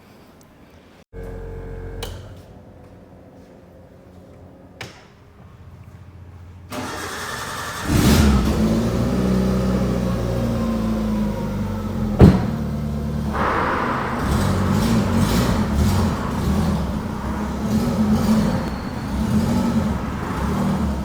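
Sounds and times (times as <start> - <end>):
car engine revving: 6.7 - 21.0.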